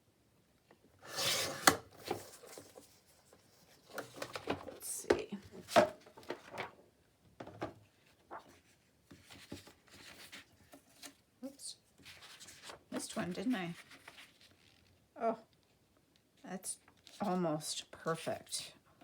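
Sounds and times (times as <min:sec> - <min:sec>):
paper rustling and sliding: 0:01.0 - 0:04.6, 0:08.0 - 0:11.2, 0:12.0 - 0:14.9.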